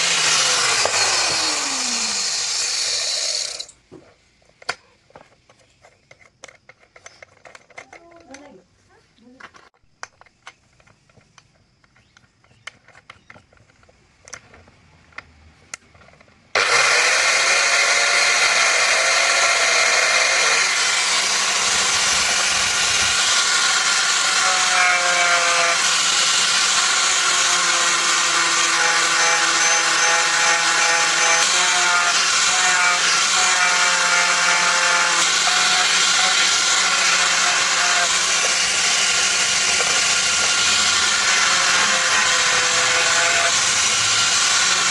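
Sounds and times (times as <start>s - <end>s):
power tool running: 0.0s - 3.8s, 16.6s - 44.9s.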